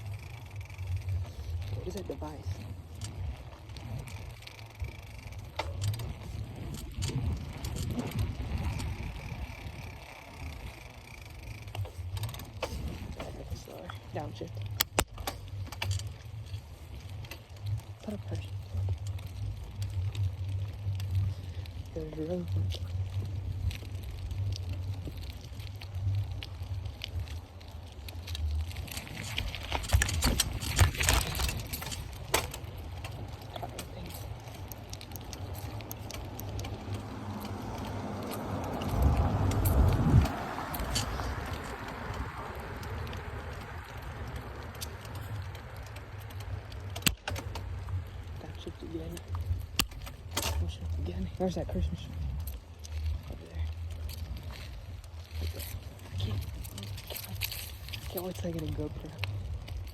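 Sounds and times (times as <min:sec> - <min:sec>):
bicycle riding rumble: 0:00.0 - 0:59.9
bike clicks and rattles: 0:00.0 - 0:59.9
wind on microphone: 0:05.9 - 0:10.0, 0:38.7 - 0:43.0.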